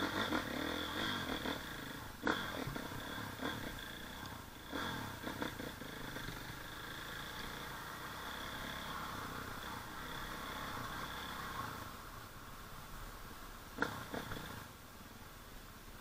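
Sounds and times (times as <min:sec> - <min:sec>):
dirt bike engine revving: 0:00.0 - 0:12.0, 0:13.8 - 0:14.7.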